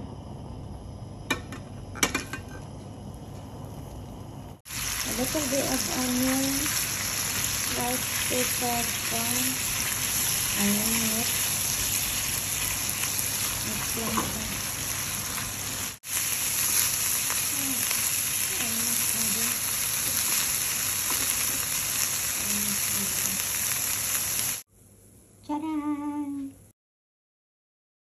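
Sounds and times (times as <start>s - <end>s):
shrimp sizzling in a pan: 4.7s - 24.6s
spatula turning food: 4.8s - 22.6s.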